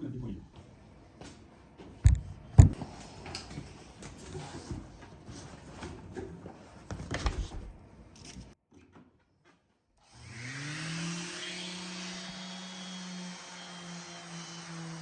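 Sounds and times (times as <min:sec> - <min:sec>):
wood knocking and clattering: 0:02.0 - 0:02.8
power tool motor whining: 0:10.1 - 0:13.2.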